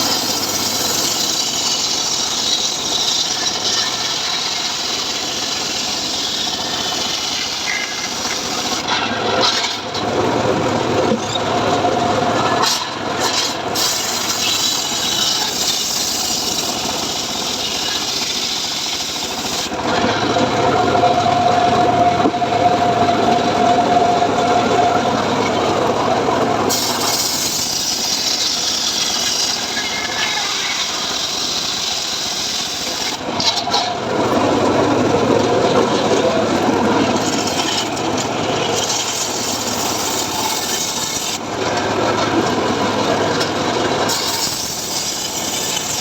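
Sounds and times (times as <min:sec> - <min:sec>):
sawmill blade cutting wood: 0:00.0 - 0:10.1, 0:10.8 - 0:46.0
sawmill engine running: 0:00.0 - 0:46.0.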